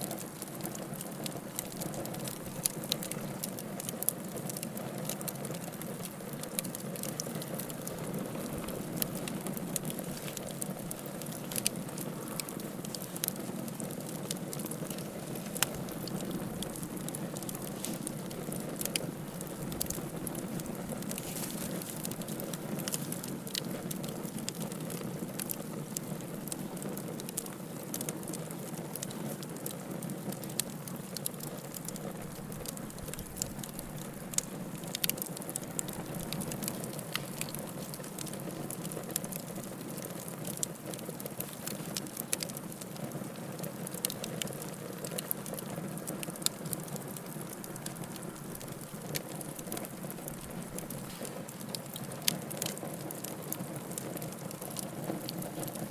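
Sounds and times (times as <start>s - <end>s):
burning logs crackling and popping: 0.0s - 55.9s
low rush of flames: 0.0s - 55.9s.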